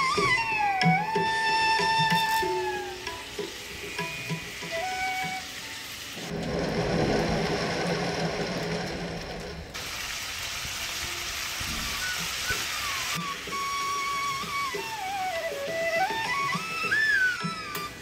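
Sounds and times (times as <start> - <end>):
prawns sizzling in a wok: 0.3 - 6.3, 9.8 - 17.1.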